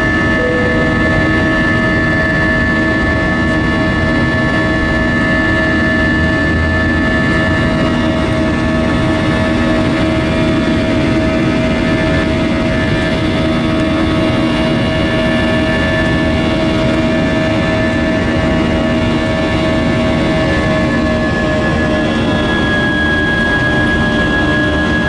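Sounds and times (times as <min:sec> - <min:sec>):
steady whining tones: 0:00.0 - 0:03.2
jet engine and airflow drone: 0:00.0 - 0:25.0.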